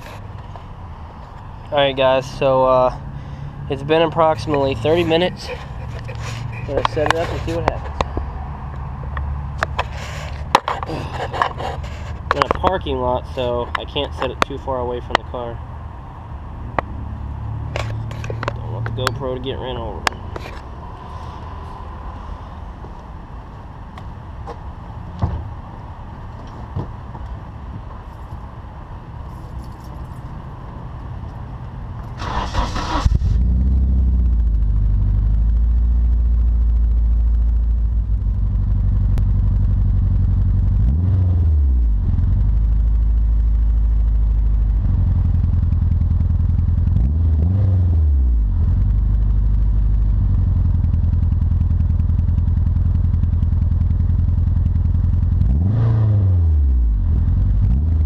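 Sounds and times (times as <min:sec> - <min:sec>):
car engine idling and revving: 0:00.0 - 0:58.0
car engine cranking and starting: 0:03.4 - 0:08.3, 0:32.0 - 0:57.8.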